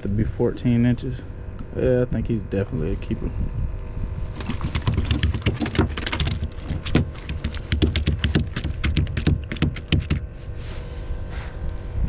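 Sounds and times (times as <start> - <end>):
sharp clicks and knocks: 4.4 - 10.2.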